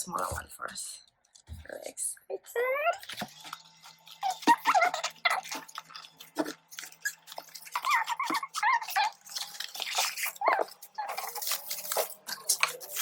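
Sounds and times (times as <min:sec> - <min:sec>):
wavering squeaks: 0:02.6 - 0:13.0
packaging rustling: 0:03.0 - 0:13.0.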